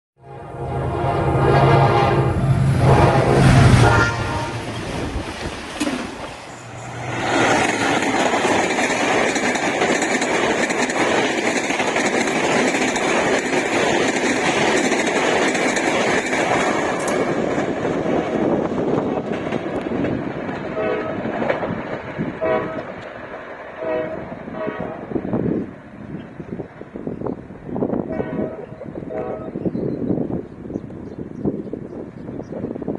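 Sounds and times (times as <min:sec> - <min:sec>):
train horn blast: 0:00.2 - 0:05.0, 0:20.7 - 0:21.4, 0:22.4 - 0:23.1, 0:23.8 - 0:25.3, 0:28.0 - 0:29.7
passing train rolling noise: 0:00.2 - 0:32.9
train wheel clatter: 0:04.6 - 0:23.6.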